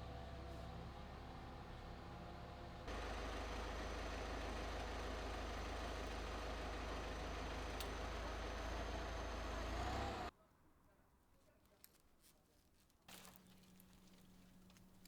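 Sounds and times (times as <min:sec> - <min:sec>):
heavy machinery engine running: 0:00.0 - 0:10.3.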